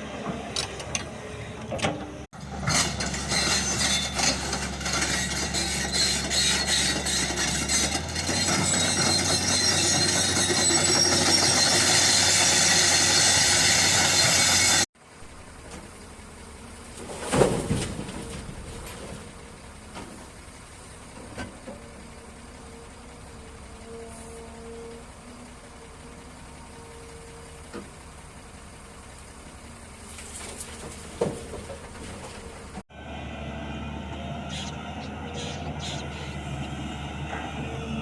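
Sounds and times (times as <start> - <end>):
mechanical rumble: 14.4 - 38.0.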